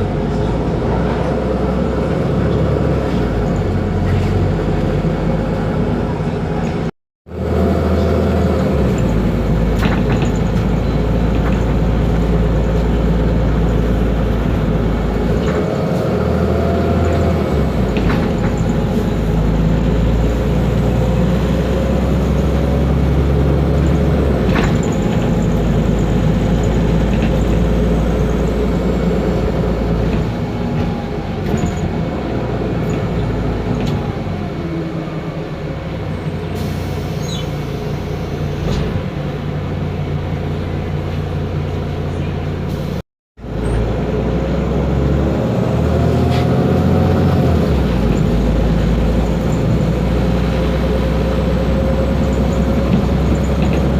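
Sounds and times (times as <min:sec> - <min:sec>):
bus engine deep rumble: 0:00.0 - 0:53.9
sharp knocks and rattles: 0:08.9 - 0:12.8.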